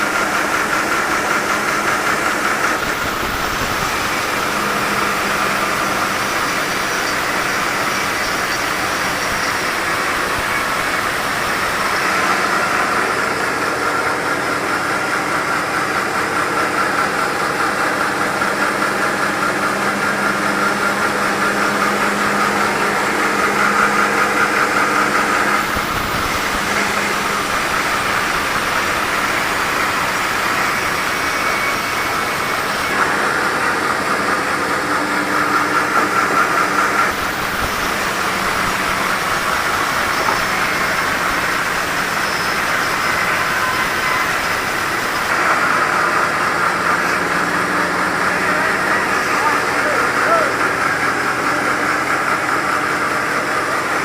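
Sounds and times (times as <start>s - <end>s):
sawmill saw cutting logs: 0.0s - 54.0s.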